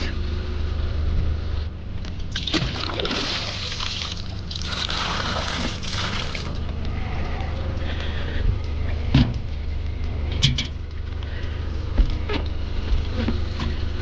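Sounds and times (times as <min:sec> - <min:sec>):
steady low hum: 0:00.0 - 0:14.0
water sloshing and splashing: 0:02.3 - 0:06.8.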